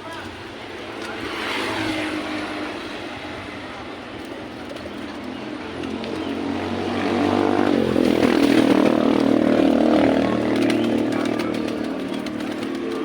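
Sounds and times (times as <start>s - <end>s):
vehicle passing by: 0.8s - 13.0s.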